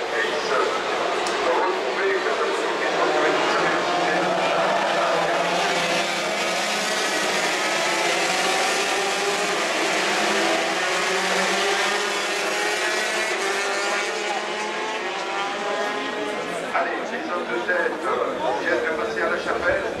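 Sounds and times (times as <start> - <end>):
racing motorcycles at high revs: 2.6 - 16.5.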